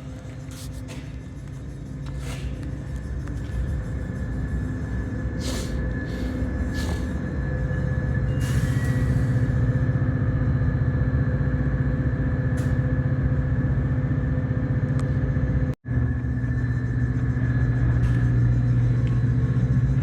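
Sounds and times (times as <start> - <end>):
diesel locomotive engine running: 0.0 - 20.0.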